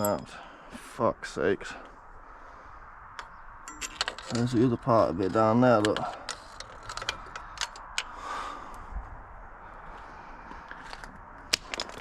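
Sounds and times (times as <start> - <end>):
metallic clicks of hand tools: 5.8 - 8.2.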